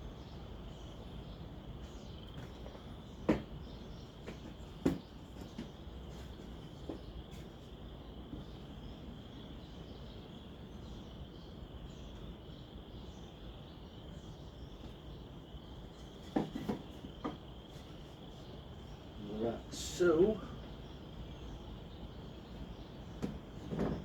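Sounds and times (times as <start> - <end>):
crickets chirring: 0.0 - 24.0
wooden knocks: 2.4 - 3.6, 4.2 - 5.8, 16.2 - 17.4, 23.2 - 24.0.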